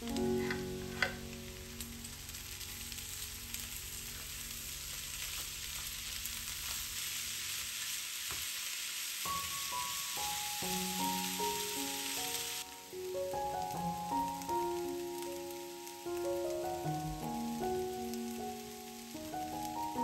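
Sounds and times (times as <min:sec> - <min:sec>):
soft piano music: 0:00.0 - 0:07.8, 0:09.2 - 0:20.0
food sizzling in a frying pan: 0:00.0 - 0:20.0
spatula scraping a pan: 0:00.2 - 0:01.3.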